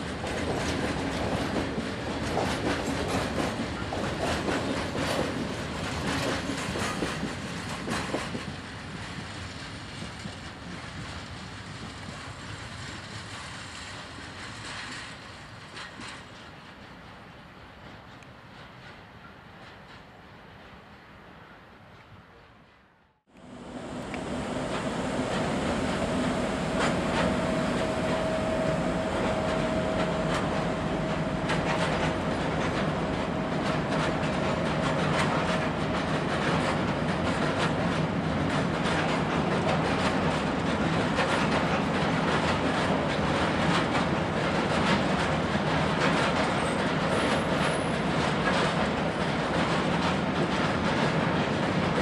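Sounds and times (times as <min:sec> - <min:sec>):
wheels clicking over rail joints: 0:00.0 - 0:17.2, 0:24.1 - 0:52.0
freight train rumble: 0:00.0 - 0:52.0
locomotive whine: 0:23.4 - 0:38.3.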